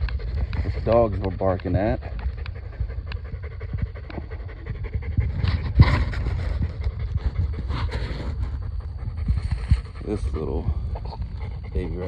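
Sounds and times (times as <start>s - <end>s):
dogs panting: 0.0s - 12.0s
steady low rumble: 0.0s - 12.0s.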